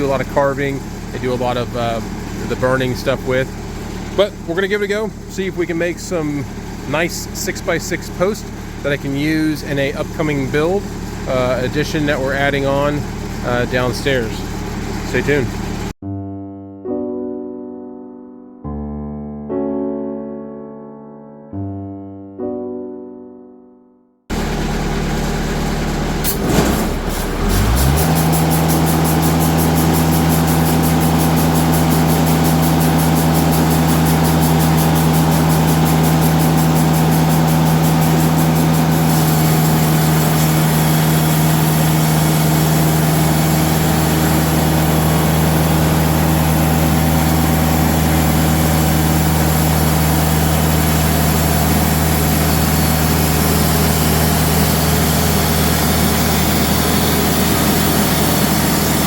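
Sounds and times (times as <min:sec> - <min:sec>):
engine revving: 0:24.3 - 0:59.0.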